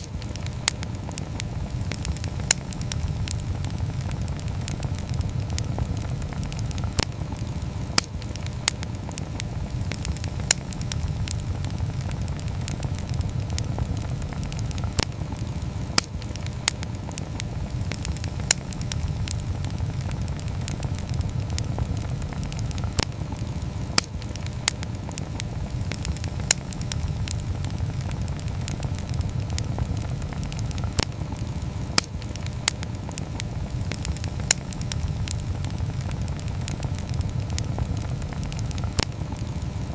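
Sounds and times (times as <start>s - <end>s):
campfire burning: 0.0s - 39.9s
crackling burning wood: 0.0s - 39.9s.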